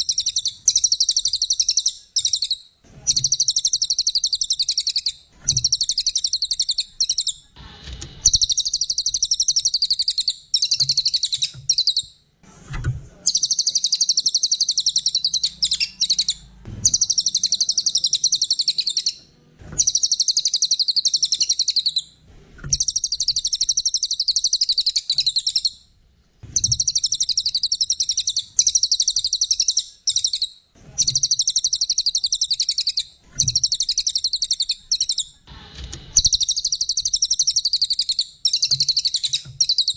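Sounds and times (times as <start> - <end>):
songbird chattering trills: 13.3 - 19.2, 19.8 - 22.0.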